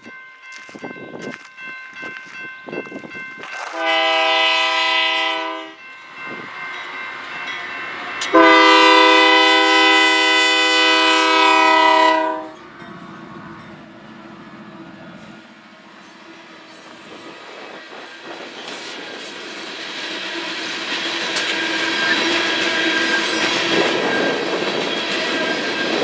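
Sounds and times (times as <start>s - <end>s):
train rumbling: 0.0s - 26.0s
locomotive air horn blasts: 3.7s - 5.8s, 8.3s - 12.6s.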